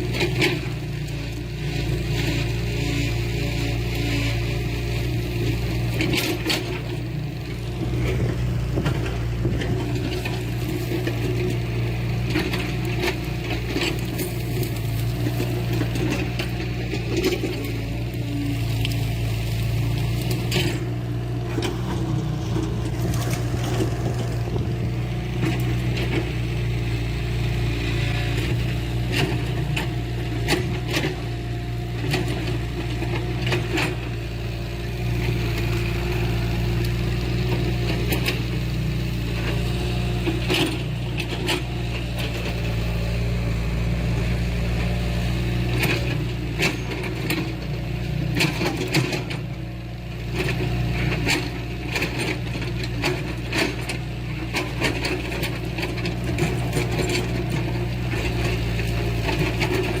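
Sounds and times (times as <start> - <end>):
heavy machinery diesel engine: 0.0 - 60.0.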